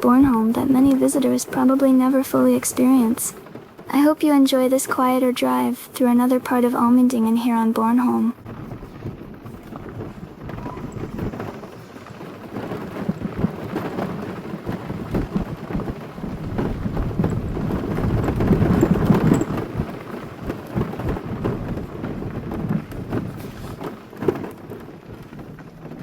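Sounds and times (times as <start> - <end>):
car tyres crunching on gravel: 8.4 - 26.0.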